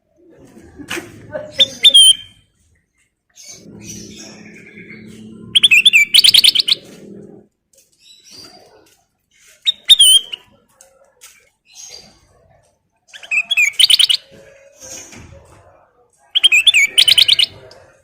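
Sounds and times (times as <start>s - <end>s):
bird singing: 3.4s - 7.4s, 13.1s - 15.0s, 16.3s - 18.0s.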